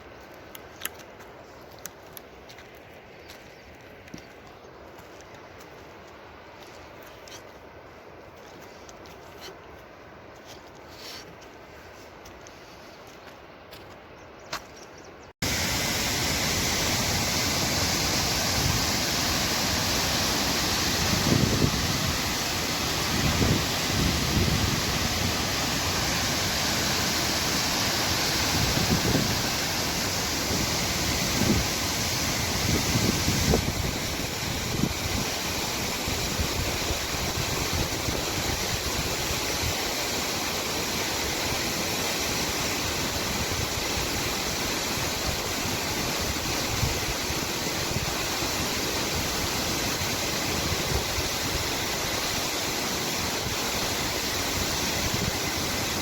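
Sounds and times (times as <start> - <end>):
waterfall rushing: 15.4 - 56.0
wind buffeting microphone: 16.5 - 39.8.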